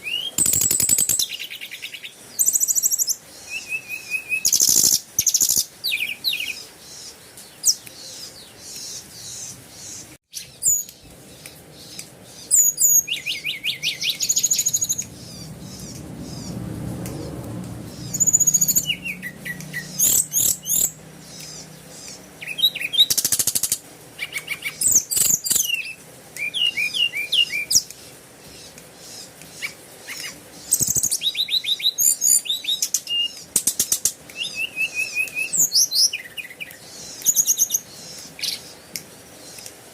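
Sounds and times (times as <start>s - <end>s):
birds chirping and singing: 0.0s - 39.8s
low rumble: 14.5s - 21.3s.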